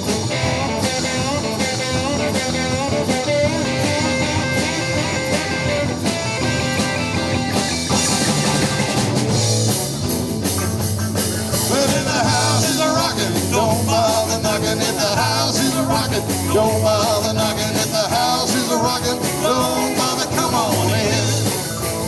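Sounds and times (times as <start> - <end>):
drum kit: 0.0 - 22.0
lead guitar with bending notes: 0.0 - 22.0
repeating bass line: 0.0 - 22.0.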